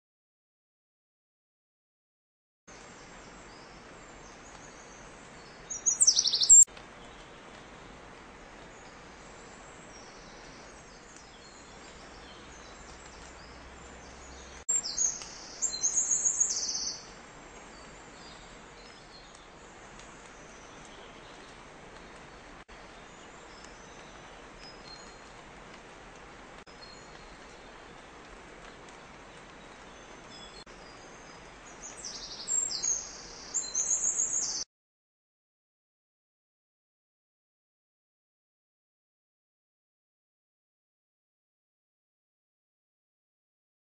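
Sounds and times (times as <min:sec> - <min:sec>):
songbirds singing: 0:02.7 - 0:25.6, 0:26.7 - 0:34.6
outdoor hiss: 0:02.7 - 0:34.6.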